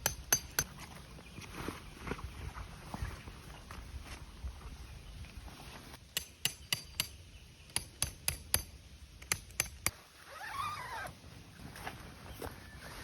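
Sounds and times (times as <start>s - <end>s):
hammer striking metal peg: 6.2s - 9.9s.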